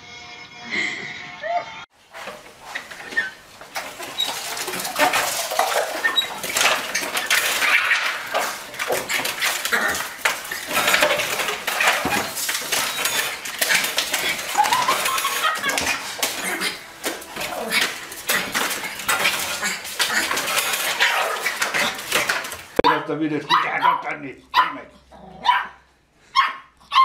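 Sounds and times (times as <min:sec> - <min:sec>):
dogs scrabbling against wooden door: 0:02.0 - 0:22.9
mail slot flap rattling: 0:03.8 - 0:22.8.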